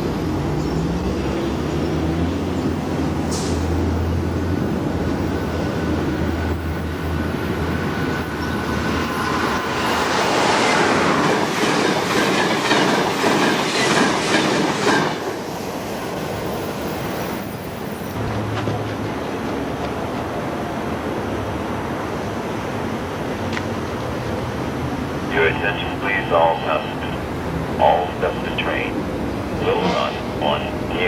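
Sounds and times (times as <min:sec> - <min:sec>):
train wheels clacking over rails: 0:07.7 - 0:15.8, 0:18.2 - 0:20.6.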